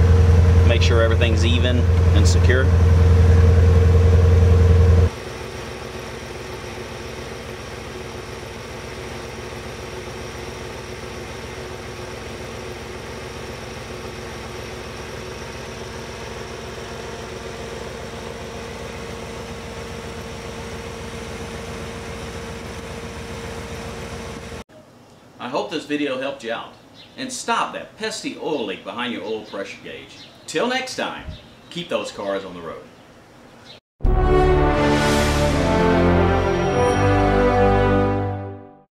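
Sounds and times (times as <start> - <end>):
low hum: 0.0 - 5.1
car engine idling: 0.0 - 24.7.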